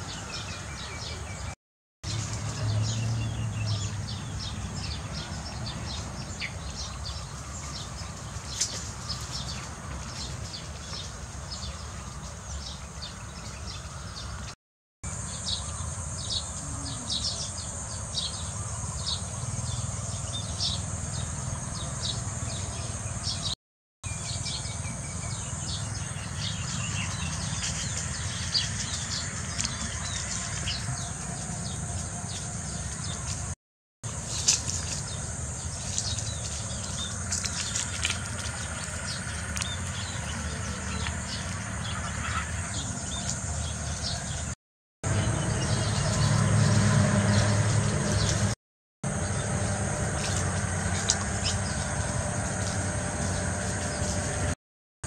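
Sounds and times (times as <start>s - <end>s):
small birds chirping: 34.1s - 46.4s.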